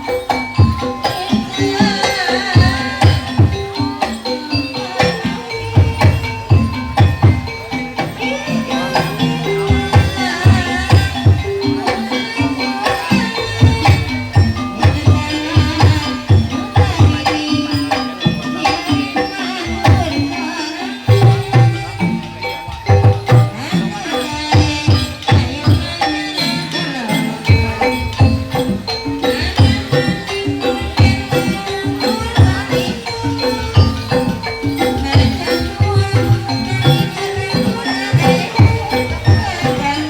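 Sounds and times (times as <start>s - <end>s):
hand drums beating fast: 0.0s - 40.0s
rattling jingle: 0.0s - 40.0s
struck metal keyed instruments: 0.0s - 40.0s.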